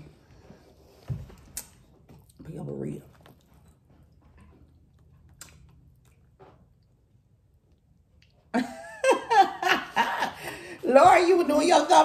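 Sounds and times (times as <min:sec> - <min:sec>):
chewing and mouth noises: 0:03.1 - 0:08.5.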